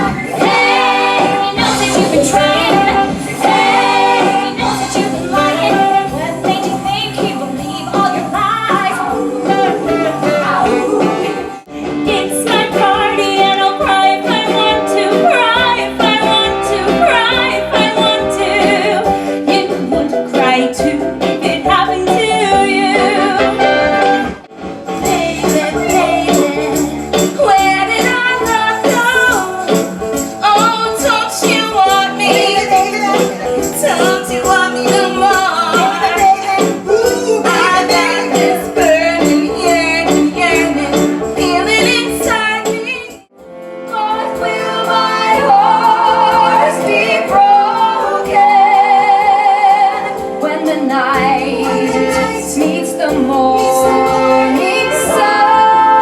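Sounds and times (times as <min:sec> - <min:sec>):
women singing pop songs: 0:00.0 - 0:24.3, 0:25.0 - 0:43.3, 0:43.9 - 0:56.0
band playing: 0:00.0 - 0:56.0
tambourine: 0:25.0 - 0:43.2.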